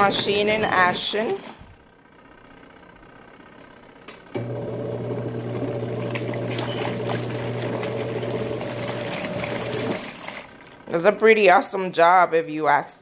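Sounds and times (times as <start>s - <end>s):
water swishing in tub: 0.0s - 1.9s, 5.1s - 11.0s
washing machine motor hum: 0.0s - 11.9s.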